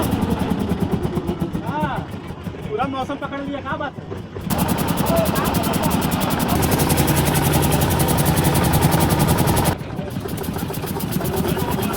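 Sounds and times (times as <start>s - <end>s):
construction machinery engine drone: 0.0s - 11.9s
mechanical pounding: 4.0s - 11.9s.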